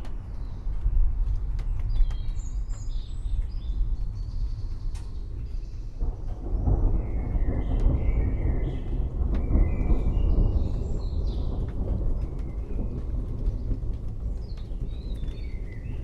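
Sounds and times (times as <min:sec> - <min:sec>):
birds chirping: 0:00.1 - 0:16.0
distant thunder rumbling: 0:03.6 - 0:16.0.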